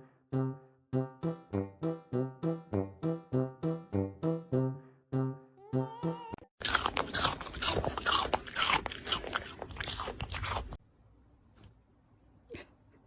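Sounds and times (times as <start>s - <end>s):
crunching and chewing food: 6.6s - 10.8s.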